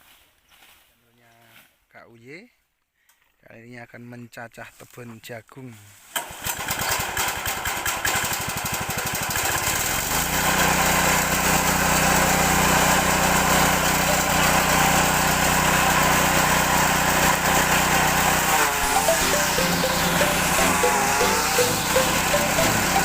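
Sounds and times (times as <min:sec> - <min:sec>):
small engine starting up: 0:06.2 - 0:23.0.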